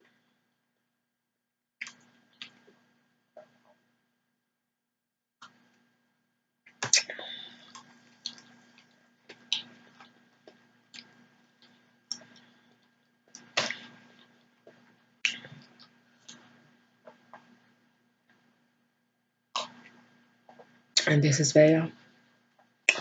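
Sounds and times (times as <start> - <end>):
air conditioner hum: 5.4 - 23.0
mouth smacks eating and drinking: 6.7 - 12.4, 13.4 - 16.5.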